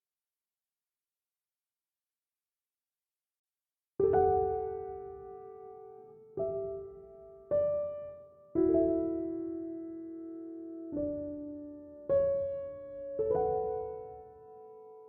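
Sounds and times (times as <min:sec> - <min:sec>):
slow piano chords: 0:04.0 - 0:15.0.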